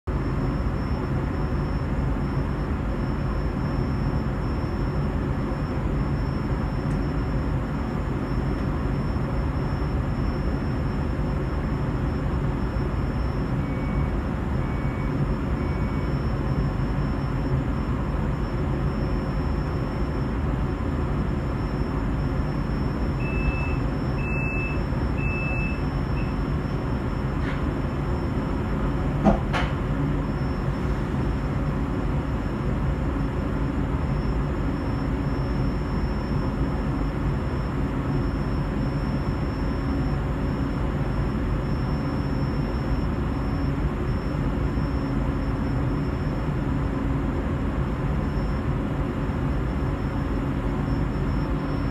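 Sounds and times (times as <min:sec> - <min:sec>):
short electronic beeps: 0:12.1 - 0:17.9, 0:21.5 - 0:28.3.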